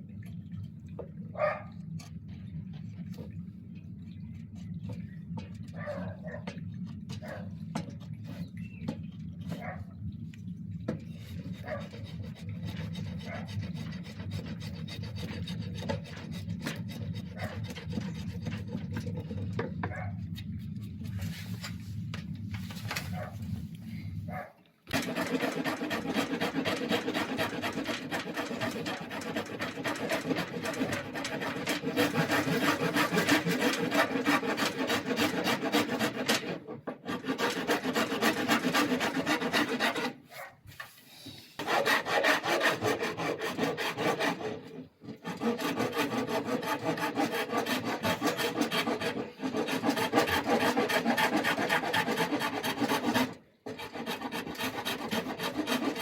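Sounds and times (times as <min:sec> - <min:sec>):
hand rasp scraping wood: 0:10.9 - 0:19.8, 0:24.9 - 0:40.9, 0:41.6 - 0:56.0.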